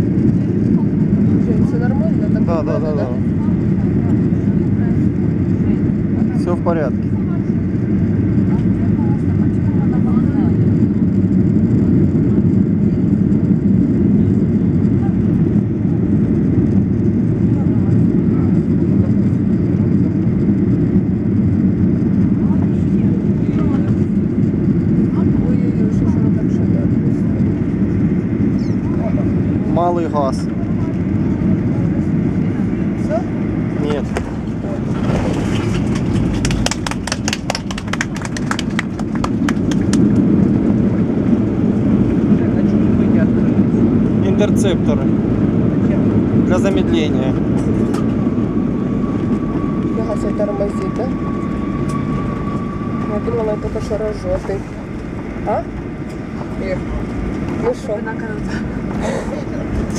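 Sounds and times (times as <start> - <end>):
jet engines rumbling: 0.0 - 59.9
rushing airflow: 0.0 - 59.9.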